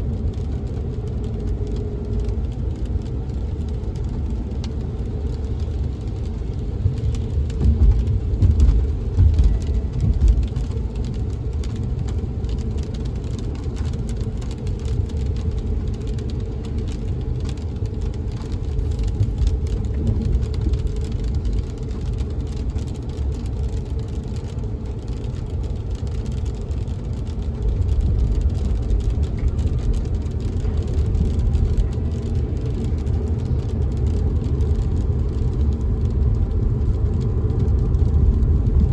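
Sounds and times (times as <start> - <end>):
car engine and road rumble: 0.0 - 38.9
raindrops tapping on windows: 0.0 - 38.9.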